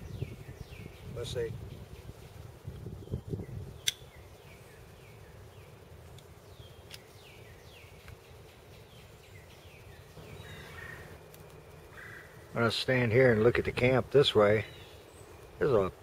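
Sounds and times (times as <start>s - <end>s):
birds chirping: 0.0s - 16.0s
sharp click: 3.8s - 4.0s.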